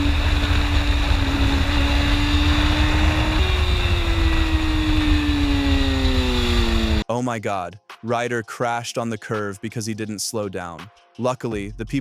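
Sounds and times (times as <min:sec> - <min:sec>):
motorcycle engine running: 0:00.0 - 0:07.0
wind rumbling on microphone: 0:00.0 - 0:07.0.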